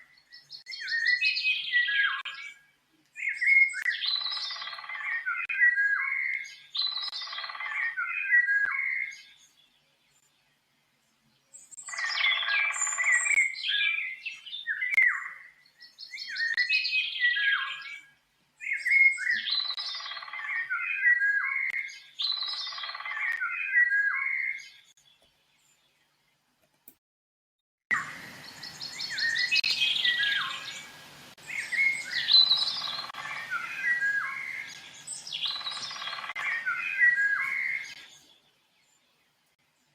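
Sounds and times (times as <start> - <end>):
songbird chirping and warbling: 0.0 - 26.5, 27.9 - 39.9
steady background hiss: 27.9 - 39.9.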